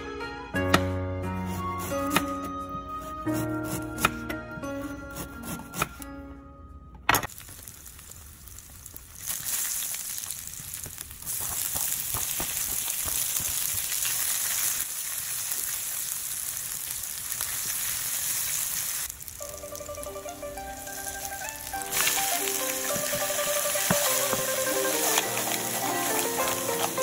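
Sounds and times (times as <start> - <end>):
food sizzling in oil: 7.3 - 27.0
spatula stirring in pan: 21.8 - 27.0.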